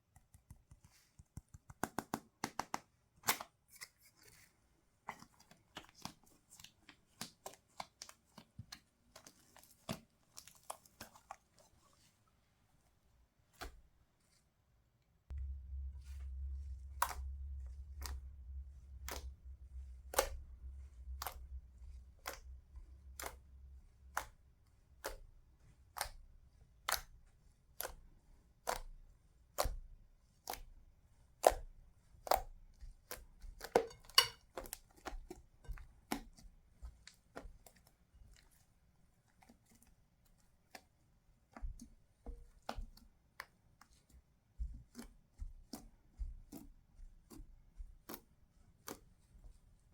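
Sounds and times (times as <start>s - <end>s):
low hum: 15.3s - 24.6s.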